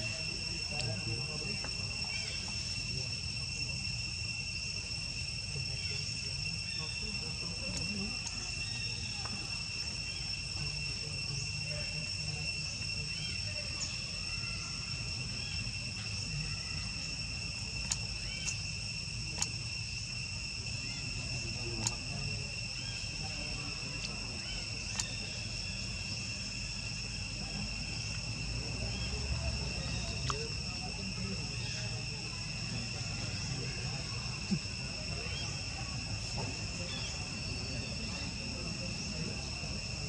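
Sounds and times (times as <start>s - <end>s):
crickets trilling: 0.0s - 40.0s
sharp clicks: 17.8s - 18.6s, 19.3s - 19.6s, 21.8s - 22.0s, 24.9s - 25.2s.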